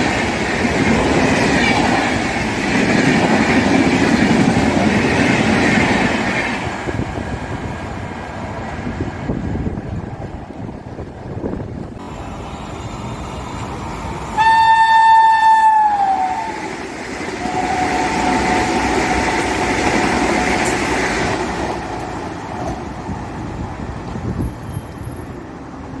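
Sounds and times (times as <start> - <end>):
rush of passing train: 0.0 - 26.0
train horn blast: 14.4 - 16.7, 17.4 - 19.5
two-tone train horn: 14.4 - 16.7, 17.4 - 19.5.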